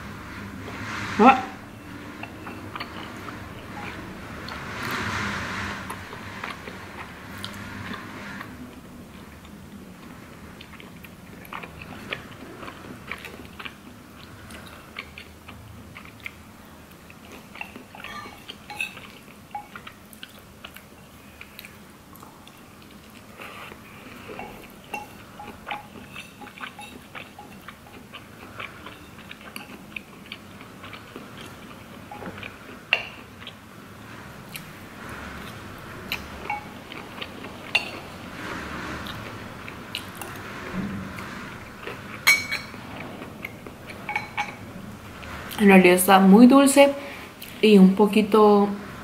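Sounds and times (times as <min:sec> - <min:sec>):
person chewing noodles: 0:09.1 - 0:33.7, 0:35.4 - 0:38.2, 0:41.8 - 0:42.2.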